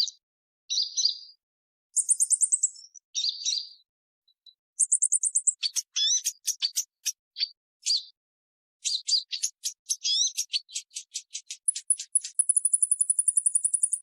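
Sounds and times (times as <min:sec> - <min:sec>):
bird chirping: 0:00.0 - 0:01.4, 0:02.0 - 0:08.2, 0:08.8 - 0:14.0
bird twittering runs: 0:02.0 - 0:03.8, 0:04.8 - 0:08.2, 0:08.8 - 0:14.0.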